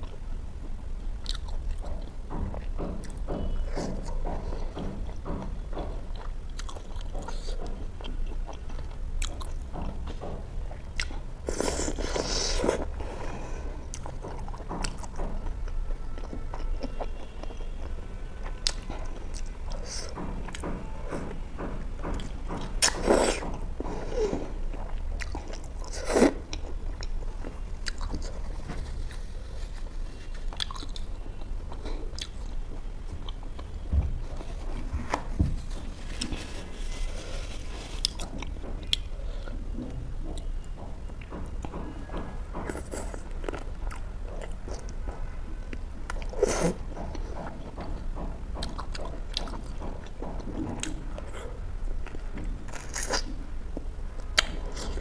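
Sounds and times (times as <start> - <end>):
person chewing food: 0.0 - 21.4, 22.0 - 55.0
low steady hum: 0.0 - 55.0.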